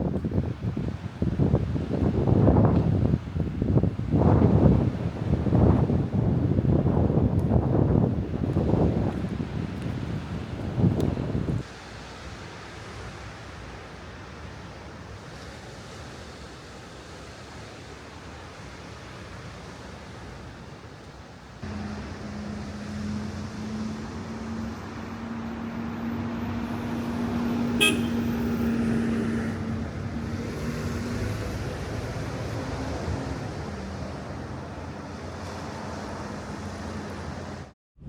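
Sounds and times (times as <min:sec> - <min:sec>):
wind: 0:00.0 - 0:38.0
passing motor vehicle drone: 0:21.6 - 0:37.7.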